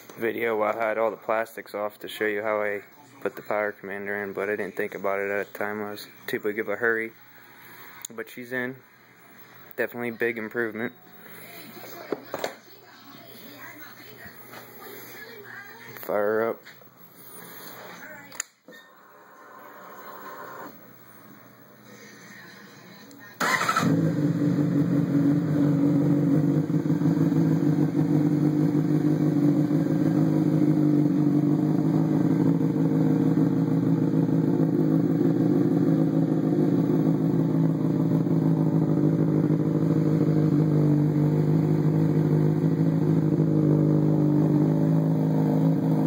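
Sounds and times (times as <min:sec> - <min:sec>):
motorcycle engine starting and idling: 0:23.4 - 0:46.0.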